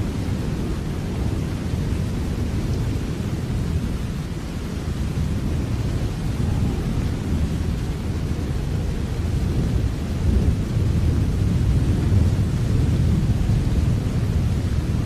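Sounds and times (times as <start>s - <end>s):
steady rain: 0.0s - 15.0s
heavy low rumble: 4.2s - 15.0s.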